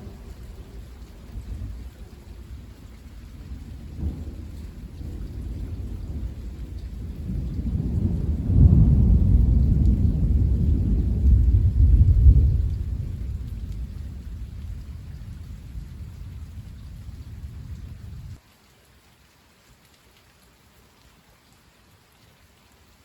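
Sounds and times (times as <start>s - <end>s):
rolling thunder: 0.0s - 18.4s
steady rain: 0.0s - 23.0s.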